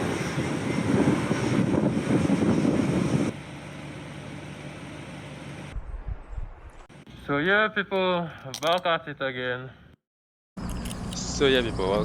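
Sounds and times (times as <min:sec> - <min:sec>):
wind rushing: 0:00.0 - 0:03.3.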